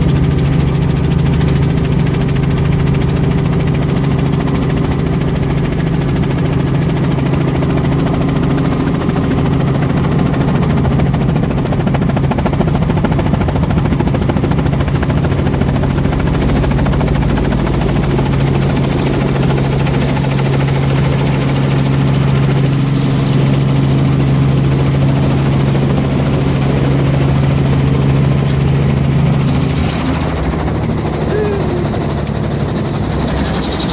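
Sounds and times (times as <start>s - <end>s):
helicopter engine and rotor drone: 0.0s - 33.9s.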